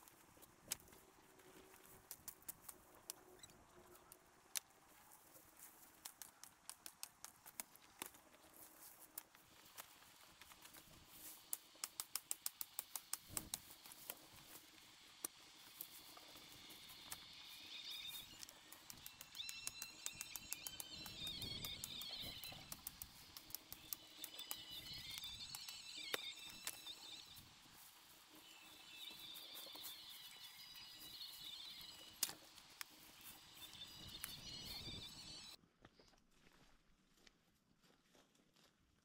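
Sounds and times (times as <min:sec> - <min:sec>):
small birds chirping: 0:10.6 - 0:35.6
quick sharp clicks: 0:11.4 - 0:14.2, 0:17.0 - 0:27.4.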